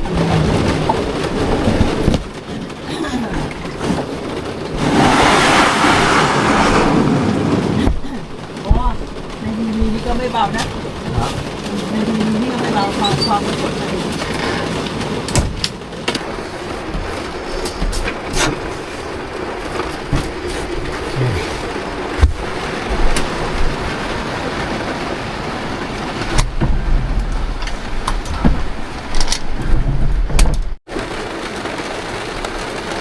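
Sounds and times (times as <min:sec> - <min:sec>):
knocks and low thumps: 0:00.0 - 0:02.7, 0:07.7 - 0:11.7, 0:22.1 - 0:23.8, 0:26.3 - 0:30.8
heavy rain on vehicle roof: 0:00.0 - 0:33.0.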